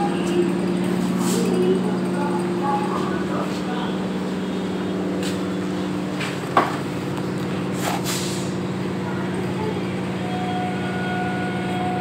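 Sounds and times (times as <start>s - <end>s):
train electrical hum: 0.0s - 12.0s
brief hisses: 7.8s - 8.5s.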